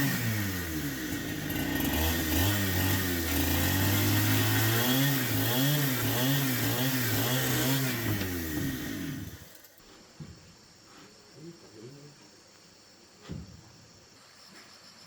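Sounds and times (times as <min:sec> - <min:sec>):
small petrol engine revving: 0:00.0 - 0:09.7.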